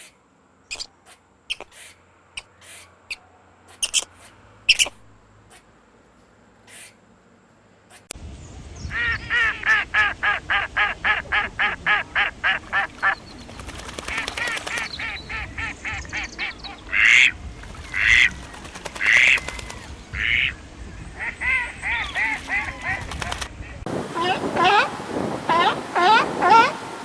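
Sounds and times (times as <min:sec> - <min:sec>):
ducks quacking: 0:08.9 - 0:26.8.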